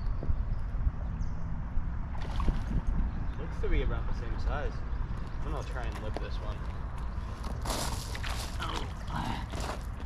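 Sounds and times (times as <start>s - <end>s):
fish thrashing splashing water: 2.2s - 2.8s.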